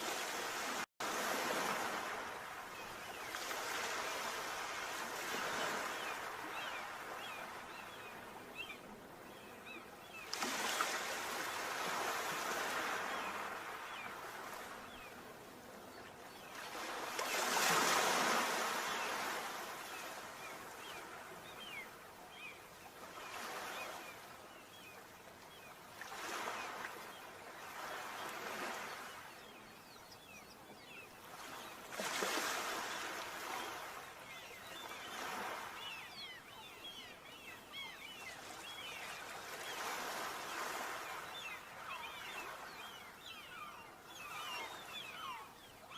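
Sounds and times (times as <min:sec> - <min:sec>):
sea waves breaking on shore: 0:00.0 - 0:45.9.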